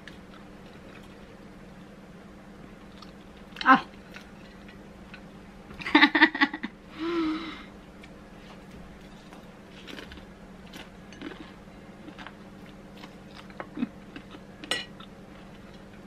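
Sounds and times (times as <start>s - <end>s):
person chewing and crunching food: 0.0s - 1.4s, 2.8s - 5.4s, 8.0s - 16.0s
faint steady hum: 0.0s - 16.0s.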